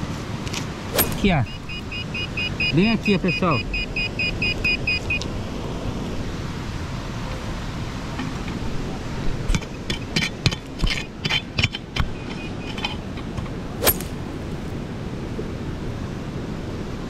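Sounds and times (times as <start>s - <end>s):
shovel chopping and scraping soil: 0.8s - 1.8s, 13.7s - 14.8s.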